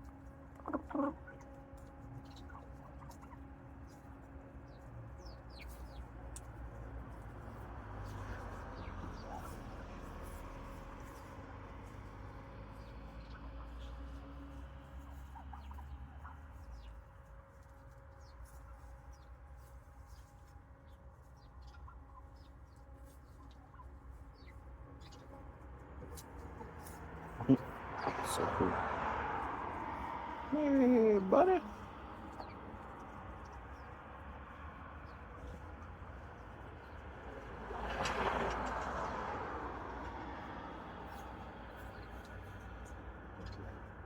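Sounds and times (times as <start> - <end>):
wild turkeys chirping and clucking: 0.5 - 3.4, 8.3 - 11.2, 15.1 - 17.0, 21.4 - 25.3
vehicle passing by: 7.0 - 16.9, 25.0 - 44.0.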